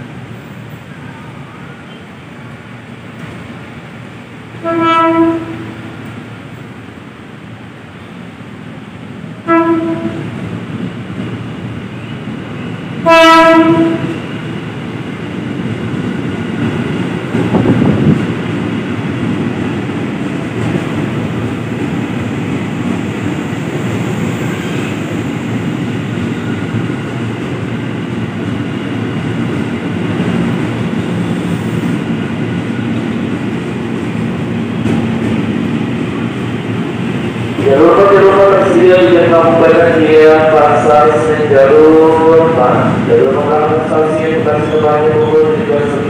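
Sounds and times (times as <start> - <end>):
train wheels rumbling on rails: 0.0 - 46.0
train horn blast: 4.6 - 5.9, 9.4 - 10.3, 13.0 - 14.2.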